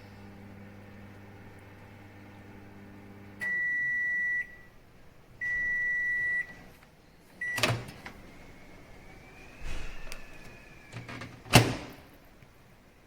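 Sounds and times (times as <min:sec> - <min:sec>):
microwave humming: 0:00.0 - 0:13.0
microwave beeps: 0:03.4 - 0:04.8, 0:05.4 - 0:06.7, 0:07.4 - 0:08.1
microwave door clunk: 0:11.0 - 0:12.1.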